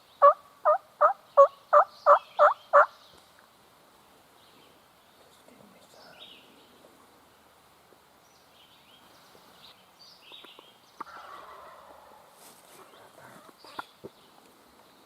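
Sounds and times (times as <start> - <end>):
songbirds chirping: 0.0 - 15.0
turkey gobbling: 0.2 - 2.9, 11.0 - 12.3.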